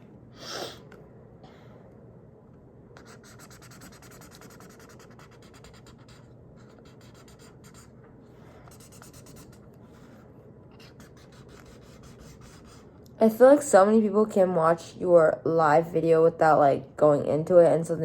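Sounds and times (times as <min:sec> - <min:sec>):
marker scribbling on paper: 0:03.0 - 0:08.0, 0:08.7 - 0:09.7, 0:10.7 - 0:12.9.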